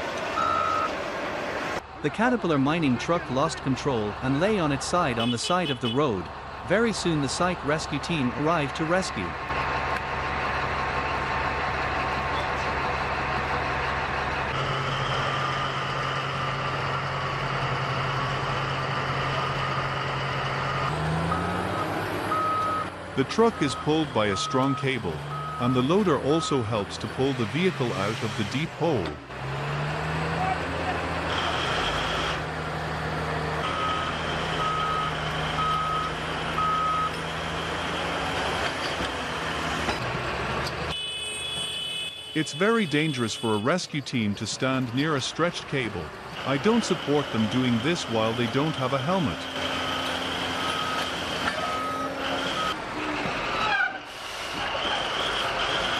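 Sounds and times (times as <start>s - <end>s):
heavy machinery diesel engine: 0.0s - 41.0s, 41.6s - 55.9s
reversing alarm beeping: 0.4s - 0.9s, 21.3s - 26.8s, 33.7s - 37.2s, 48.1s - 52.8s
heavy equipment engine idling: 7.6s - 20.9s.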